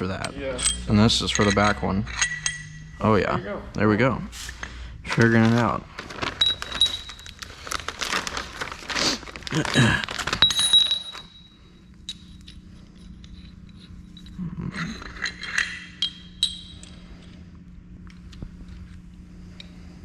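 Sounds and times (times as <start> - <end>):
metal bolts clinking: 0.0 - 3.0
faint steady hum: 0.0 - 20.0.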